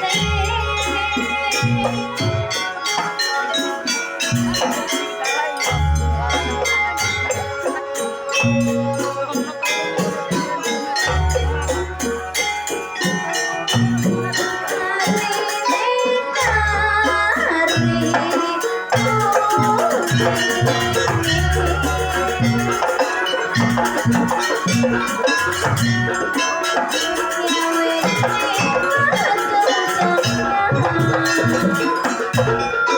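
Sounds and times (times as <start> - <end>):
fast drums and rattling percussion: 0.0 - 32.9.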